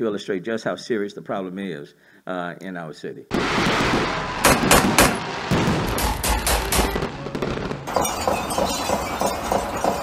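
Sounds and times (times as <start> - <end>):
fireworks bangs: 3.3 - 10.0.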